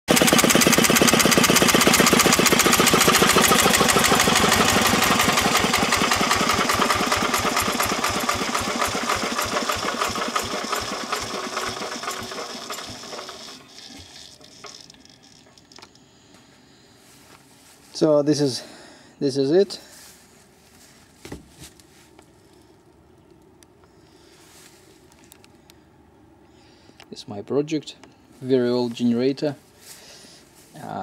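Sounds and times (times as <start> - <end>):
diesel engine chugging: 0.1 - 13.6.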